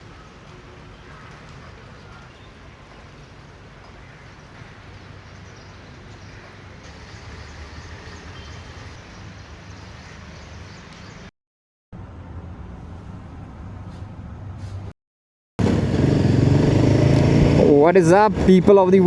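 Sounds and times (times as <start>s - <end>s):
wind and wet road noise: 0.0s - 11.3s
motorcycle engine running: 15.6s - 17.8s.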